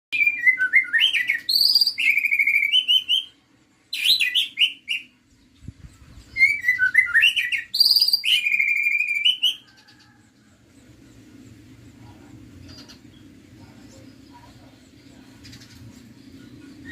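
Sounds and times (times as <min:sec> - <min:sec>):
bird singing whistled phrases: 0:00.1 - 0:03.4, 0:06.3 - 0:09.6.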